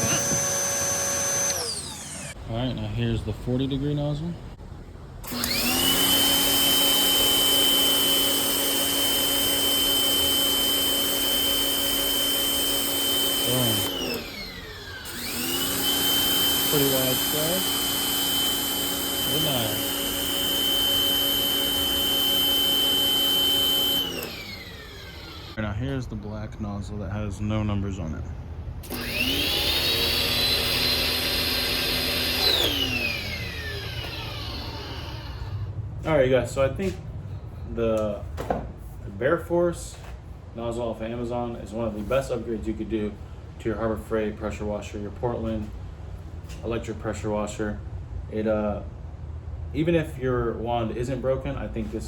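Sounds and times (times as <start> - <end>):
pressure washer motor whining: 0.0 - 2.4, 5.2 - 25.6, 28.8 - 35.8.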